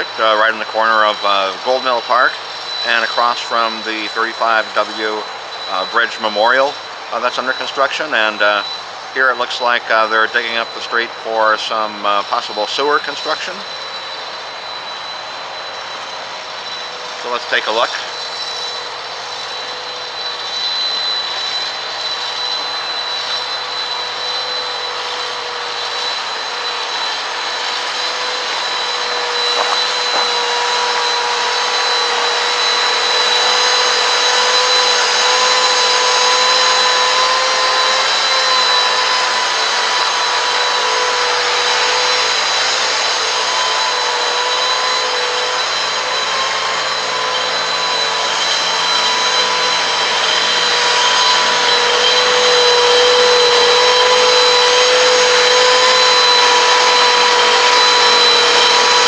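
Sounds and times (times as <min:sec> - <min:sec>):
road construction machinery: 0:00.0 - 0:33.5.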